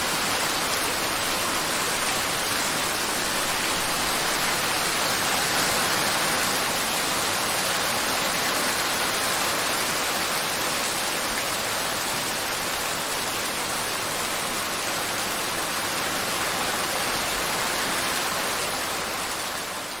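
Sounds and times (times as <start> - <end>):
rain pouring: 0.0 - 20.0.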